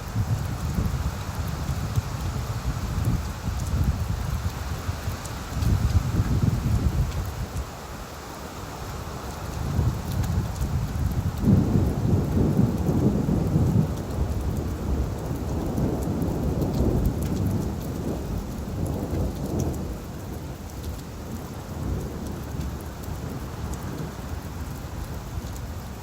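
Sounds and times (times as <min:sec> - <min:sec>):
thunder rumble: 0:00.0 - 0:07.4, 0:09.7 - 0:20.6
rain on leaves: 0:00.0 - 0:26.0.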